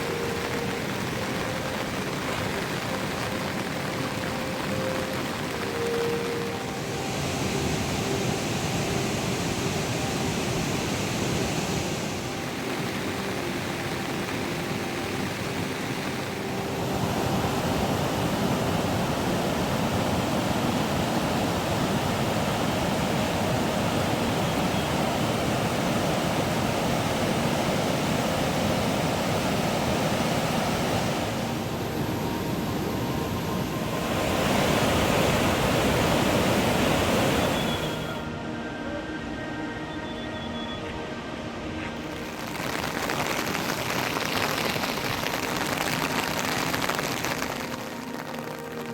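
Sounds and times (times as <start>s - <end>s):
heavy rain pouring: 0.0s - 38.4s, 42.0s - 48.9s.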